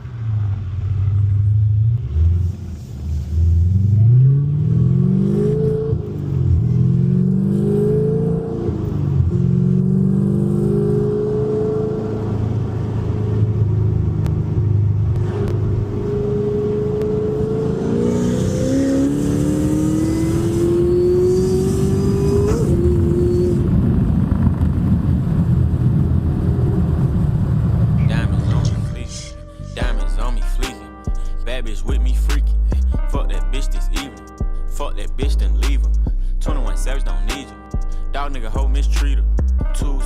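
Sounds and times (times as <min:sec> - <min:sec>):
car engine revving: 0:00.0 - 0:29.4.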